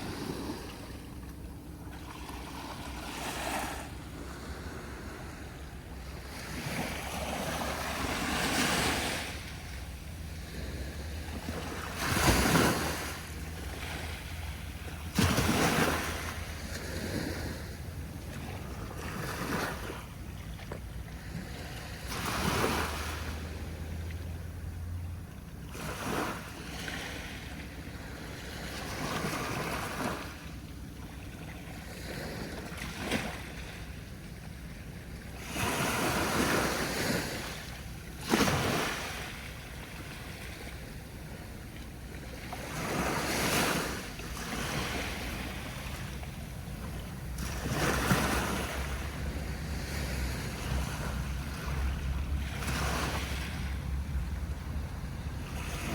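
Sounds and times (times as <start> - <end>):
waves breaking on a beach: 0.0 - 25.0, 25.6 - 55.9.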